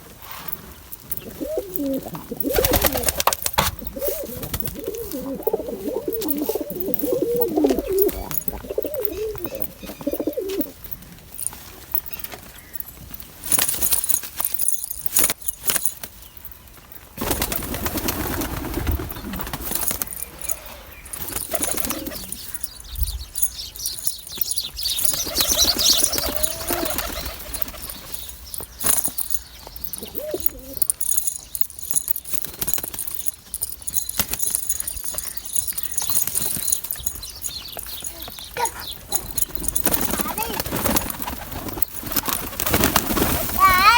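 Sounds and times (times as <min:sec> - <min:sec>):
pigeon cooing: 0:01.1 - 0:10.9, 0:19.0 - 0:28.4, 0:29.1 - 0:32.0, 0:37.9 - 0:42.2
pigeon wings flapping: 0:01.2 - 0:10.8, 0:17.2 - 0:22.4, 0:25.0 - 0:29.3, 0:32.3 - 0:37.2, 0:38.6 - 0:43.9.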